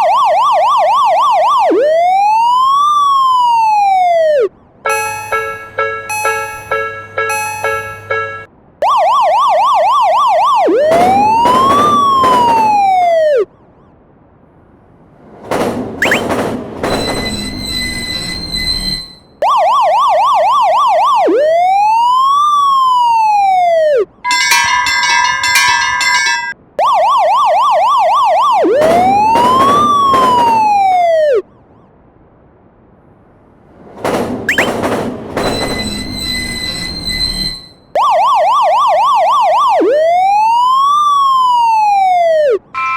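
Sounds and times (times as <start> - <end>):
electronic police siren: 0.0 - 14.0, 16.0 - 24.7, 26.8 - 31.9, 34.5 - 42.9
bright electronic tones: 4.9 - 9.0, 16.0 - 16.3, 16.9 - 19.9, 34.5 - 34.8
noisy clatter: 15.2 - 19.4, 33.7 - 37.9.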